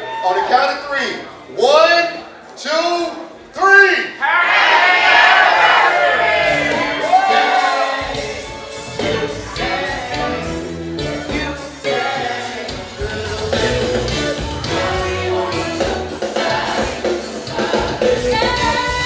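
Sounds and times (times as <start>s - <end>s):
song with band and singer: 6.2s - 19.0s.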